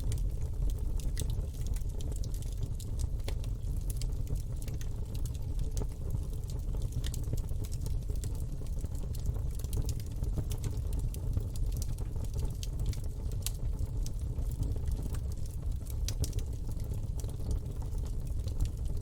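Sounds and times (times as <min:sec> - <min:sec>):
campfire flames rumbling: 0:00.0 - 0:19.0
fire crackles and pops: 0:00.0 - 0:19.0.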